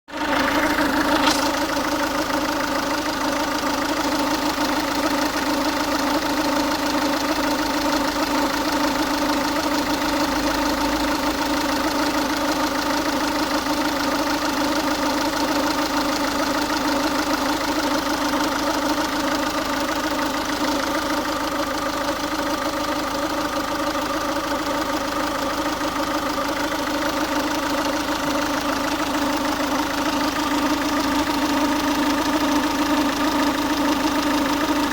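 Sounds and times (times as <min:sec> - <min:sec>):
diesel engine idling: 0:00.1 - 0:34.9.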